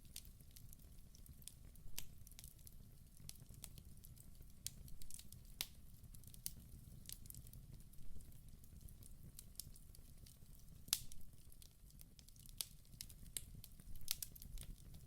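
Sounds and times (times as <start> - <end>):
wood crackling and popping: 0.0 - 15.0.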